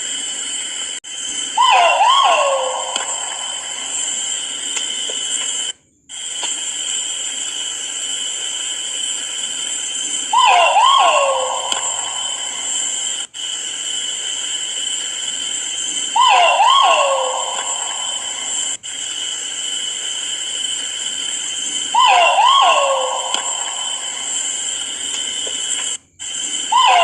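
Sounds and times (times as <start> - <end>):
pheasant swooping call: 1.6 - 4.2, 10.3 - 13.0, 16.1 - 18.8, 21.9 - 24.6, 26.7 - 27.0.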